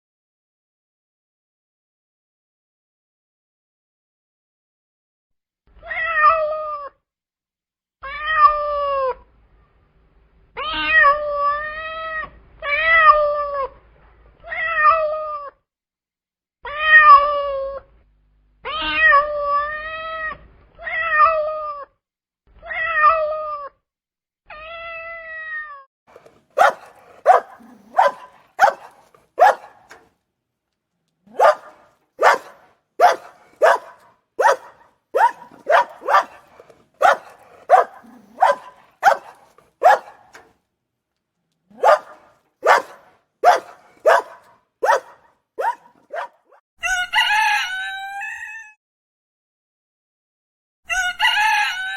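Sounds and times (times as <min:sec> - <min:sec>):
cat meowing: 0:05.8 - 0:06.9, 0:14.5 - 0:15.5, 0:18.7 - 0:21.9, 0:22.6 - 0:23.7, 0:26.6 - 0:30.0, 0:31.3 - 0:40.4, 0:41.7 - 0:45.0
dog barking: 0:26.5 - 0:30.1, 0:31.3 - 0:40.5, 0:41.7 - 0:46.6.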